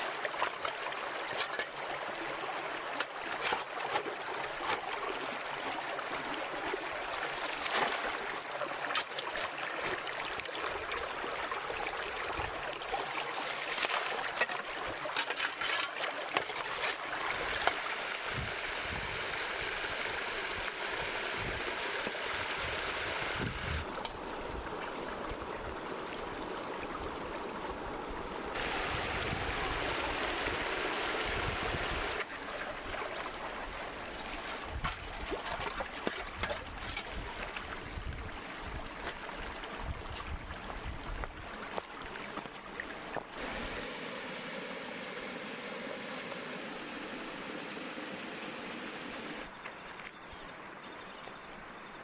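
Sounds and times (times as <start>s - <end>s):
running water rushing: 0.0s - 50.1s.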